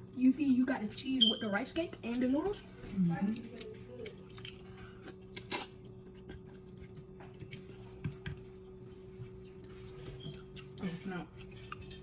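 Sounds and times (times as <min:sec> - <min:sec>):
faint steady hum: 0:00.0 - 0:12.0
chewing mouth noises: 0:03.5 - 0:12.0.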